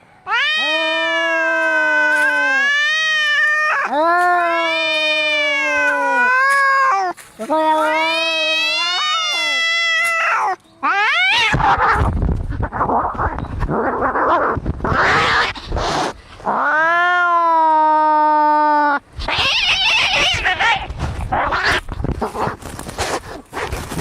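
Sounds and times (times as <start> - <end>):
cat yowl: 0.3 - 12.8, 14.9 - 21.8
cats hissing and spitting: 11.3 - 16.6, 19.2 - 24.0.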